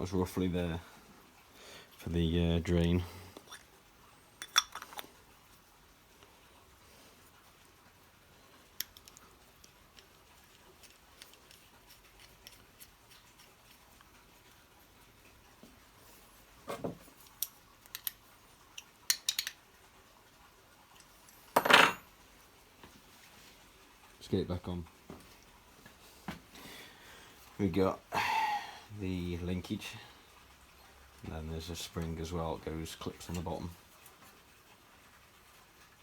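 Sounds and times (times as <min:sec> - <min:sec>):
small metal parts clinking: 0:18.8 - 0:19.6.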